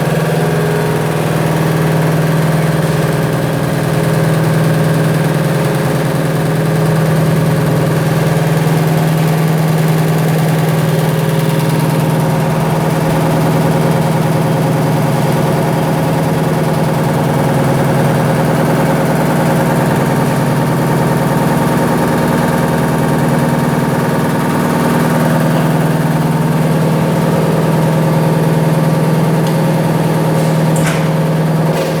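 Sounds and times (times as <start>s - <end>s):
washing machine humming: 0.0s - 32.0s
short rattle: 29.4s - 32.0s.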